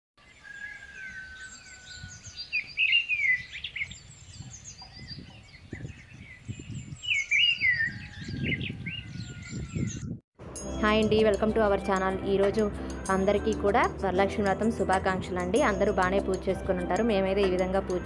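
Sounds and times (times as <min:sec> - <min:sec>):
loud bursts of birdsong: 0:00.2 - 0:10.0
small birds chirping and twittering: 0:00.2 - 0:10.2.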